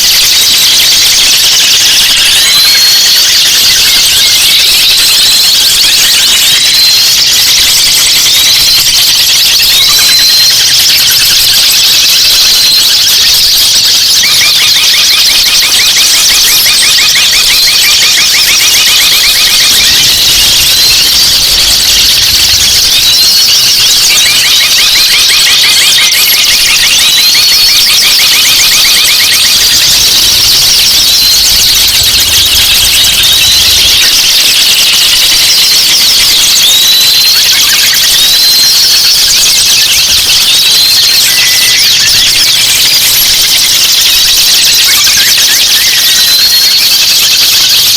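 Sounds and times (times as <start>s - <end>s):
rapid repeated bird notes: 0.0s - 47.9s
rising whistles: 8.1s - 43.2s
songbirds chirping and trilling: 13.5s - 38.4s.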